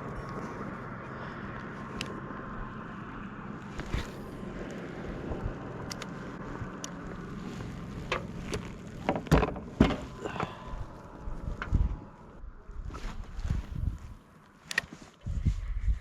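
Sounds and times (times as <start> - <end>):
wind noise on microphone: 3.7 - 14.2, 14.8 - 16.0.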